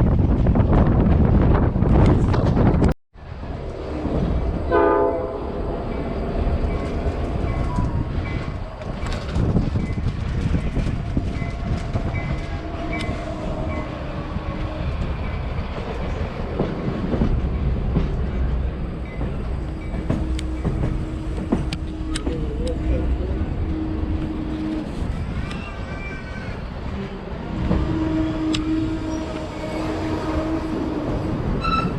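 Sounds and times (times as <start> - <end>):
train rumbling along track: 0.0 - 31.9
locomotive horn blast: 4.7 - 5.6, 20.0 - 25.1, 27.4 - 31.9
train wheel clicks: 15.7 - 22.8.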